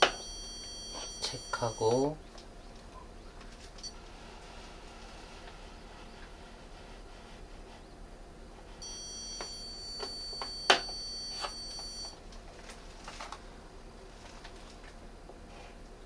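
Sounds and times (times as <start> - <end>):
stud finder beeping: 0.0 - 2.1, 8.8 - 12.2.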